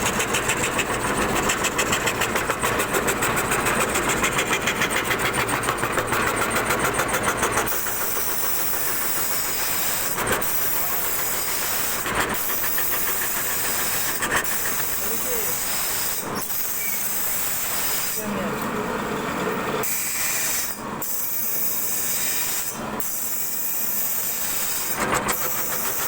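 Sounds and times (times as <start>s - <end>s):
cnc router carving wood: 0.0s - 26.0s.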